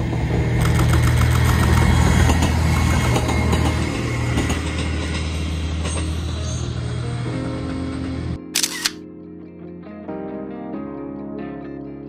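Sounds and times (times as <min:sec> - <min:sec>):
diesel railcar engine drone: 0:00.0 - 0:09.0
wheels clicking over rails: 0:00.4 - 0:06.2.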